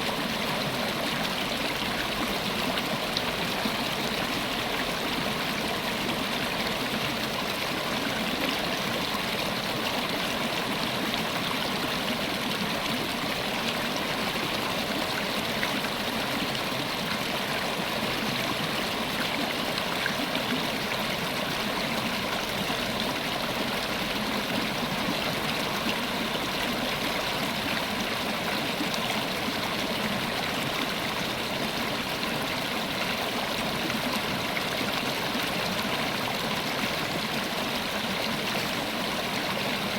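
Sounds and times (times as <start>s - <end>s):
river water over rocks: 0.0s - 39.9s.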